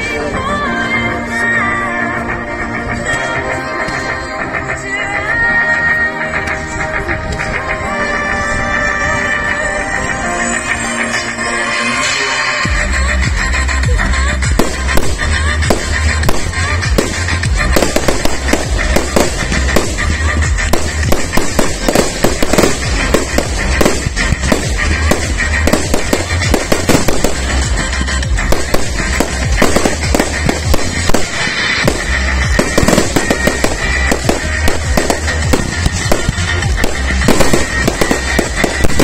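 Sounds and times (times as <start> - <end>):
music with pulsing bass beat: 0.0 - 39.0
fireworks bangs and crackling: 14.4 - 39.0.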